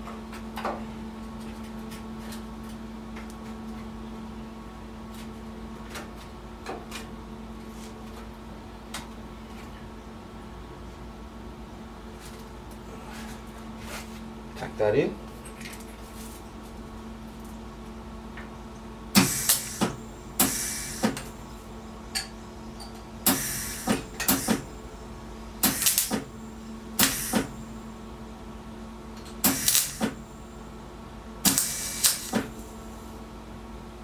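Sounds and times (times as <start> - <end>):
welder steady hum: 16.7 - 34.0
welder crackling bursts: 19.1 - 21.5, 23.2 - 24.8, 25.6 - 27.8, 29.4 - 30.2, 31.4 - 32.8.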